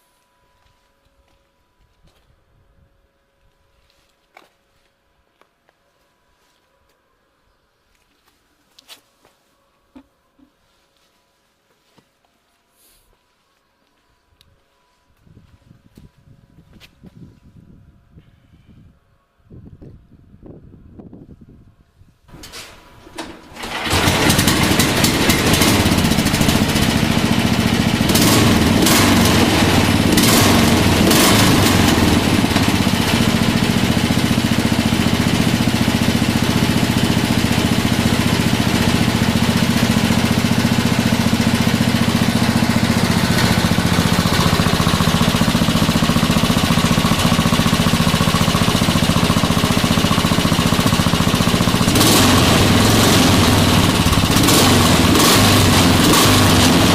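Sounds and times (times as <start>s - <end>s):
engine starting and running: 22.3s - 56.9s
sharp exhaust cracks: 23.2s - 56.9s.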